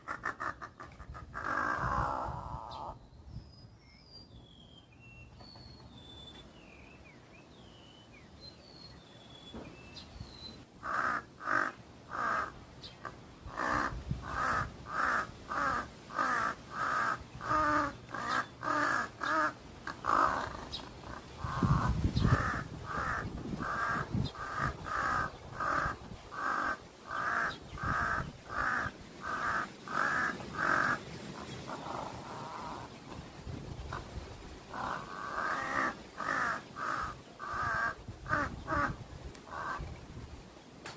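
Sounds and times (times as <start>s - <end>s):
crow cawing: 0.0s - 2.9s, 10.8s - 12.6s, 13.5s - 31.0s, 34.7s - 39.9s
small birds chirping: 17.3s - 23.2s.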